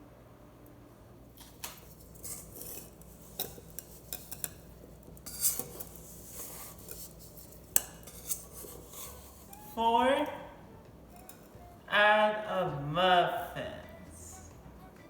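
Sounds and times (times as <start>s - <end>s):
utensil stirring batter in bowl: 1.4s - 9.8s, 11.0s - 11.8s
utensil clinking against bowl: 2.0s - 9.7s, 11.1s - 11.7s.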